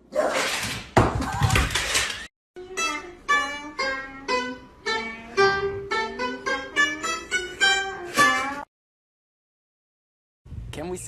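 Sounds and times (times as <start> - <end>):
plucked string instrument melody: 2.6 - 8.7.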